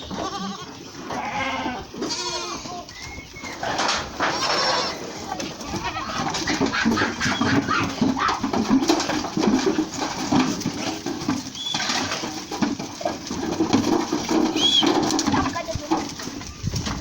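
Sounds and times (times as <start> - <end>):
goats and farm animals: 0.0 - 17.0.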